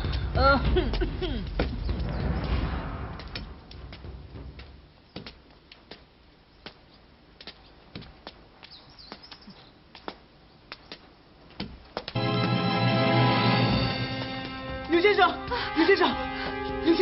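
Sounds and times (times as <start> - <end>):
faint bird chirps: 8.7 - 9.8.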